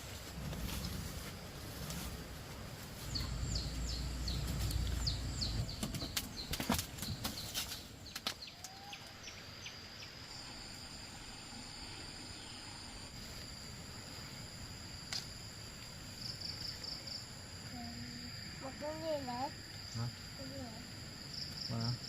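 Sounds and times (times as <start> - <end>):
high insect drone: 0.0 - 22.0
small bird chirping: 3.0 - 10.4.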